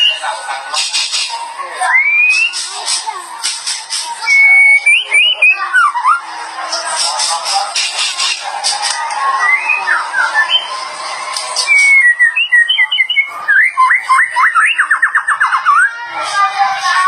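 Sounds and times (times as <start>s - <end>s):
chatter of other birds: 0.0s - 17.0s
songbird whistled song: 1.9s - 2.7s, 4.2s - 6.2s, 9.4s - 10.9s, 11.6s - 16.0s.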